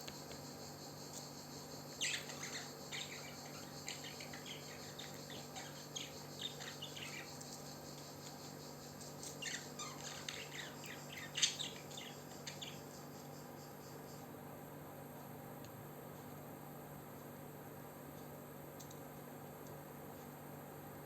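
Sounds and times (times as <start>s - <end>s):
parrot chirping and squawking: 9.4s - 12.6s.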